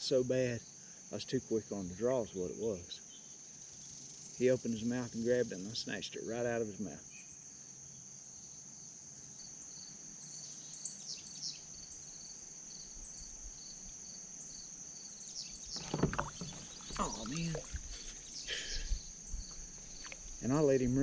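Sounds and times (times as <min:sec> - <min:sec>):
insects droning high tone: 0:00.0 - 0:21.0
low pulsing insect call: 0:00.0 - 0:21.0
rustling and knocks: 0:15.6 - 0:18.4.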